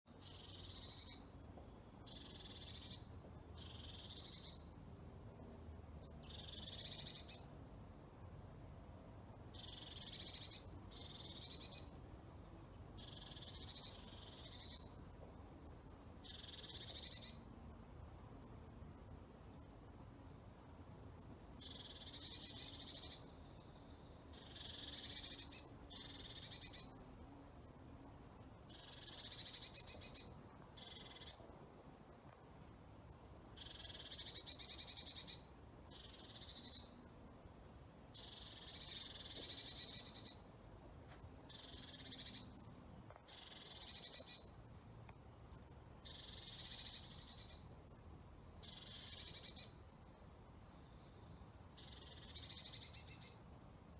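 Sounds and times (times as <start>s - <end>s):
songbird trilling: 0.2s - 1.3s, 3.6s - 4.6s, 6.2s - 7.5s, 9.5s - 11.9s, 13.0s - 15.0s, 16.2s - 17.5s, 21.6s - 27.0s, 28.7s - 31.4s, 33.6s - 36.9s, 38.1s - 40.4s, 41.5s - 42.6s, 43.3s - 44.9s, 45.6s - 48.0s, 48.6s - 49.8s, 51.6s - 53.4s.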